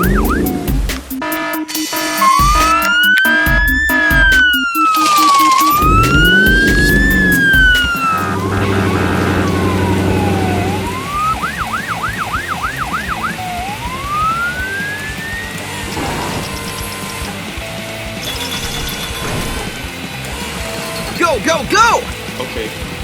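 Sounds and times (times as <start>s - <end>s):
police siren wailing and yelping: 0.0s - 17.4s.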